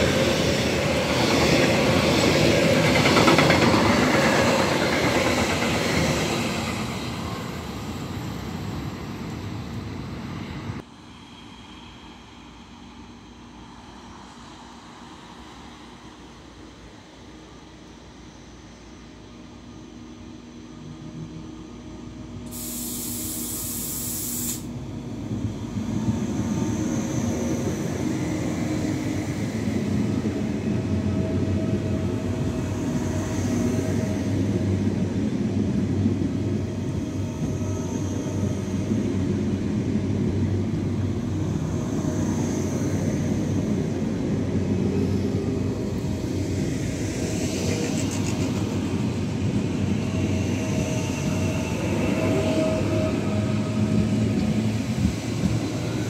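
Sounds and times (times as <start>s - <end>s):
train wheels rumbling: 0.0s - 9.9s
brief hiss: 22.5s - 24.8s.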